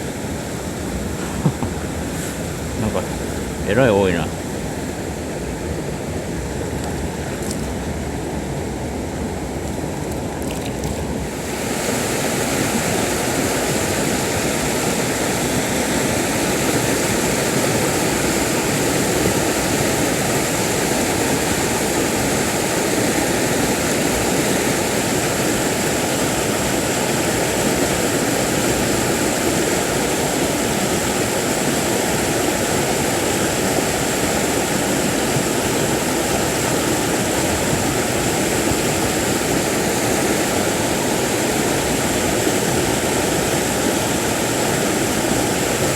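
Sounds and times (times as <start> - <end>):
mountain stream rushing: 0.0 - 45.9.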